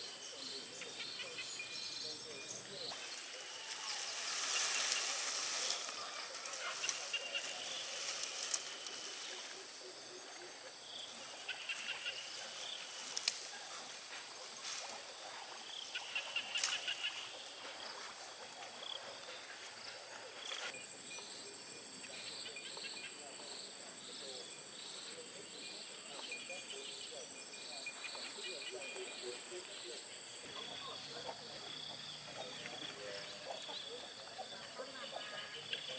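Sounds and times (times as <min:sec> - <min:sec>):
pulsing insect chirps: 0:00.0 - 0:14.1
insects high-pitched drone: 0:00.0 - 0:35.9.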